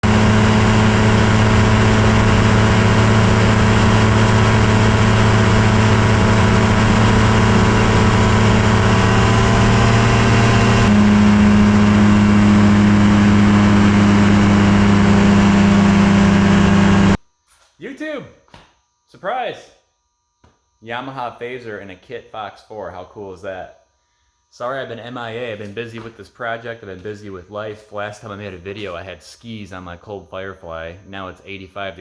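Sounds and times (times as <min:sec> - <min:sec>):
light airplane engine drone: 0:00.0 - 0:17.2.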